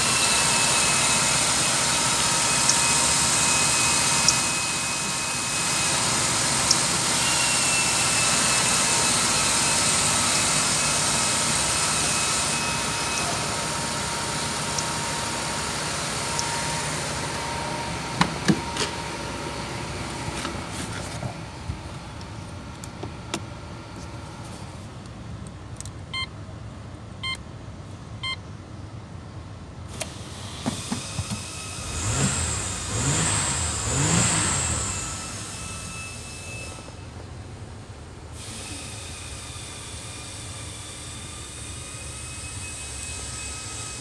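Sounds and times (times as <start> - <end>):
car engine idling and revving: 0.0 - 24.6, 30.4 - 44.0
beeps: 11.9 - 19.2.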